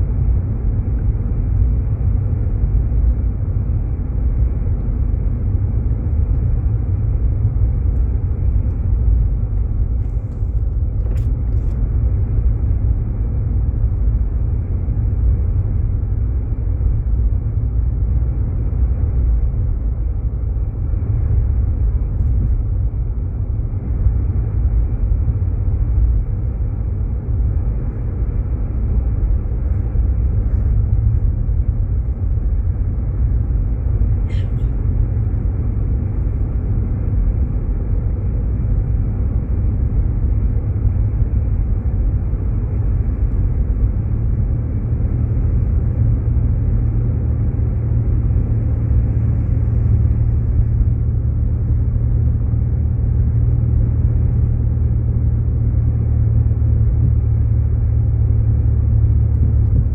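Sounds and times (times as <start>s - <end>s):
car engine rumble: 0.0s - 59.9s
tyres on snowy road: 0.0s - 59.9s.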